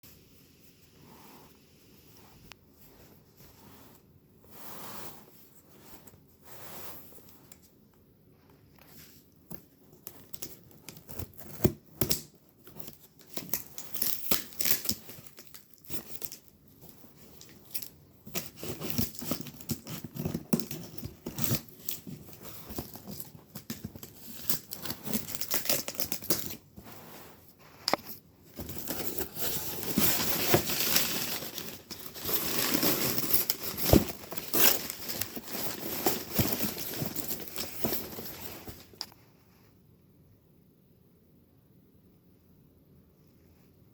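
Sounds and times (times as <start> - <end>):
packaging crinkling and tearing: 10.0 - 26.7, 28.0 - 39.1.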